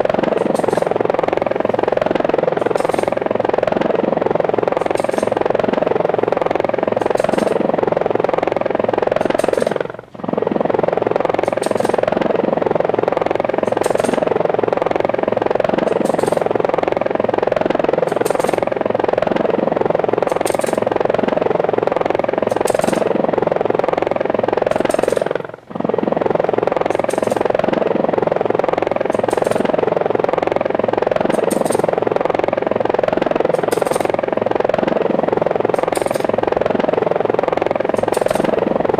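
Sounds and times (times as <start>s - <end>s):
helicopter rotors whirring: 0.0s - 38.9s.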